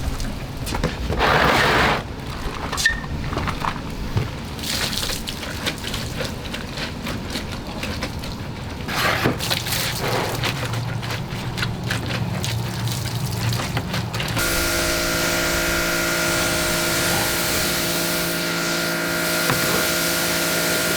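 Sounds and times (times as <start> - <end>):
water splashing and dripping: 4.3 - 20.9
low steady hum: 14.4 - 20.9.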